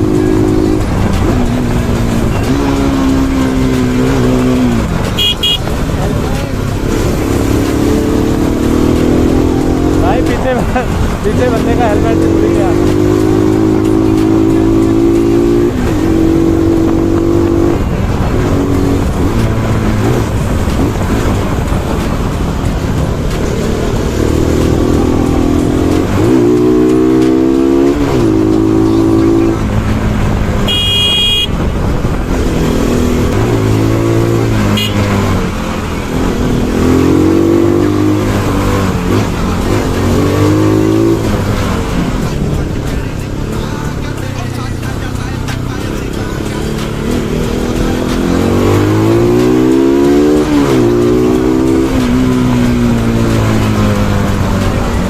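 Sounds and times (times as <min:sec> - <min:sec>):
motorcycle engine revving: 0:00.0 - 0:55.0
wind and road noise: 0:00.0 - 0:55.0
horn toot: 0:04.4 - 0:05.8, 0:30.6 - 0:31.7, 0:34.5 - 0:35.3.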